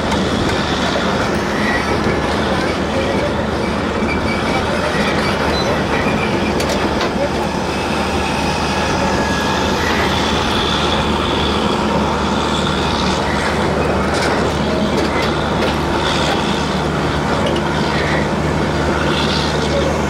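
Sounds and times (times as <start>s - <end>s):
train wheels rumbling on rails: 0.0s - 20.0s
high-pitched wheel squeals: 1.3s - 11.6s.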